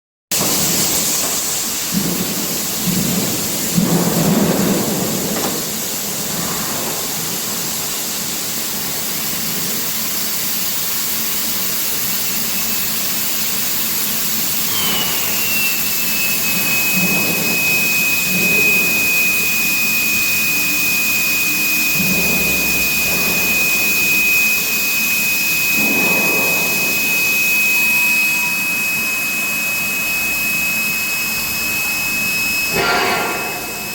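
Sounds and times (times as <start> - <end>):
industrial machinery roaring: 0.3 - 33.9
high whine: 14.0 - 33.9.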